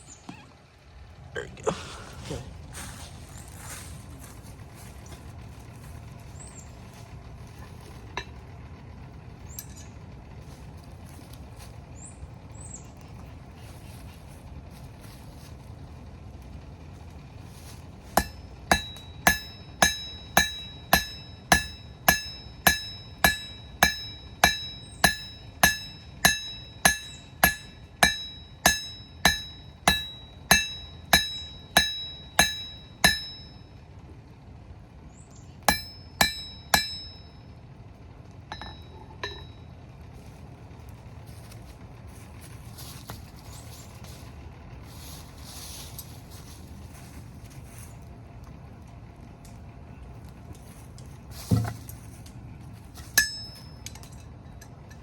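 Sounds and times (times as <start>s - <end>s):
hammer blows on metal: 18.1s - 33.6s, 35.7s - 37.3s.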